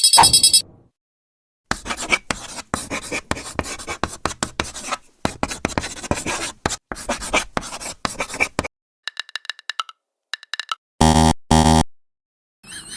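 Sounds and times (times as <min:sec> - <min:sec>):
writing tool scribbling: 0:01.7 - 0:08.7.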